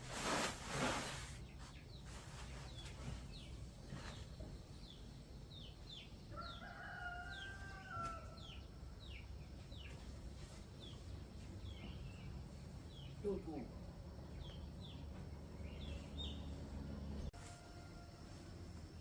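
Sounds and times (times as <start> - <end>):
small birds chirping: 1.0 - 17.4
rooster crowing: 6.3 - 8.6, 17.4 - 18.8.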